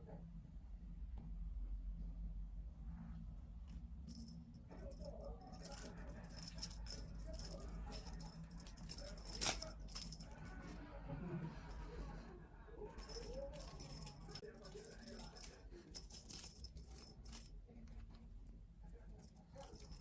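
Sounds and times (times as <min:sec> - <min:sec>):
rattling and jingling of cat playing: 0:04.0 - 0:10.9, 0:12.9 - 0:17.6, 0:19.1 - 0:20.0.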